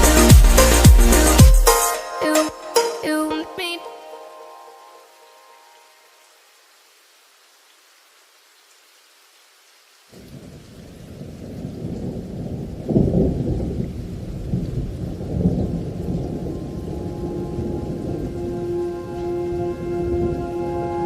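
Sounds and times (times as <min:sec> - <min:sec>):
steady rain: 0:04.1 - 0:21.0
thunder rumbling: 0:10.2 - 0:21.0.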